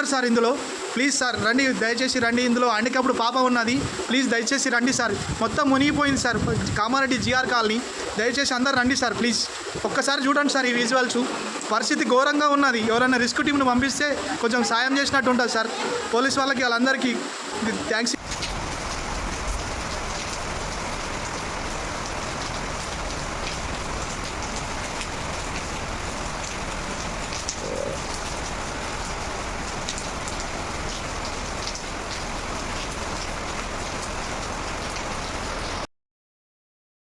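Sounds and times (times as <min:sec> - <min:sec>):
steady rain falling: 0:00.0 - 0:06.3, 0:07.0 - 0:15.7, 0:17.0 - 0:35.9
raindrop ticks: 0:18.2 - 0:35.8.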